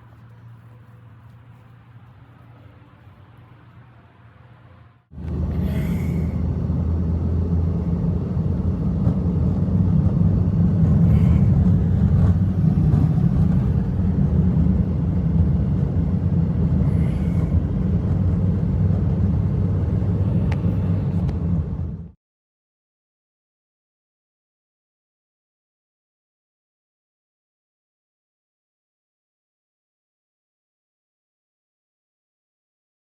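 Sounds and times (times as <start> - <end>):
blizzard wind blowing: 0.0 - 22.2.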